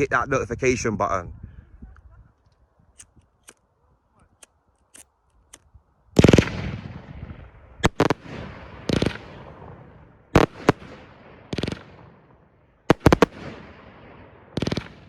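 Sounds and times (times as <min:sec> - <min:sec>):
firework bangs: 0:06.2 - 0:12.2, 0:12.9 - 0:15.0.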